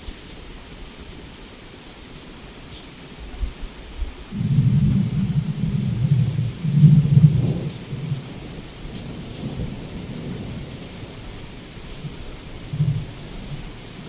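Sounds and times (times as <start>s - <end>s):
heavy rain falling: 0.0s - 14.0s
rolling thunder rumble: 3.4s - 14.0s.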